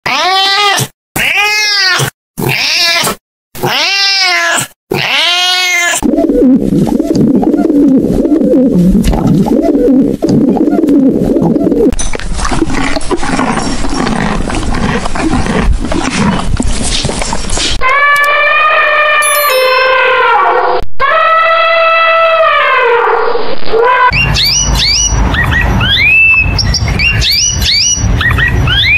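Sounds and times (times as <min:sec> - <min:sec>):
cat meowing: 0:00.1 - 0:06.0
pigeon cooing: 0:06.0 - 0:11.9
pony snorting: 0:12.4 - 0:17.8.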